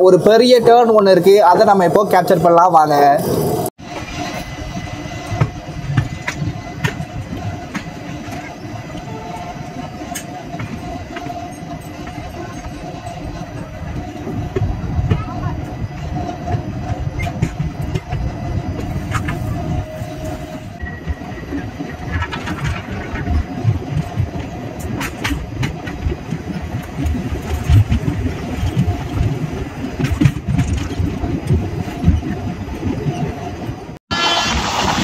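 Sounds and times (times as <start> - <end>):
train rumbling on rails: 0.0 - 35.0
wheels clicking over rail joints: 0.2 - 20.6, 21.4 - 35.0.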